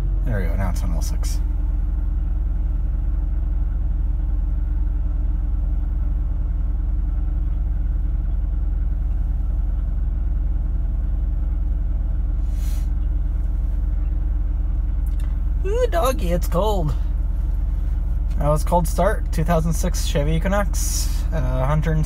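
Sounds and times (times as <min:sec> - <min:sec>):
car engine idling: 0:00.0 - 0:22.0
brief hiss: 0:12.4 - 0:13.0.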